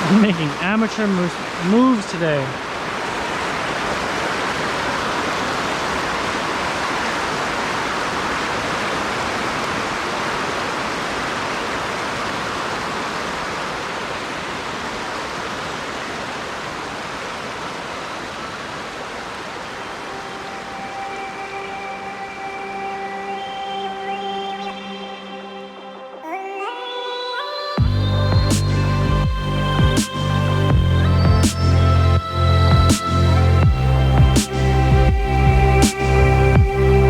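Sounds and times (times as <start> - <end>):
river water rushing: 0.0 - 26.2
faint music with held notes: 19.8 - 26.6.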